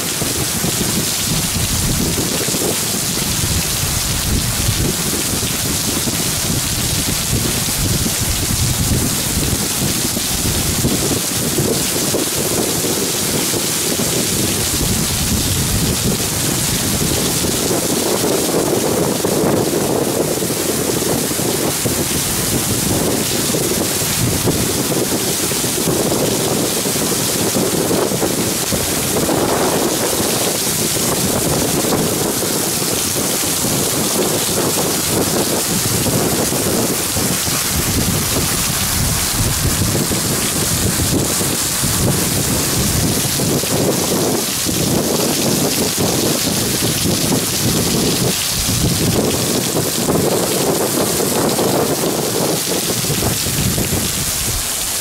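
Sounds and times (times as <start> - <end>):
heavy rain hissing: 0.0 - 55.0
wind buffeting the microphone: 0.0 - 55.0.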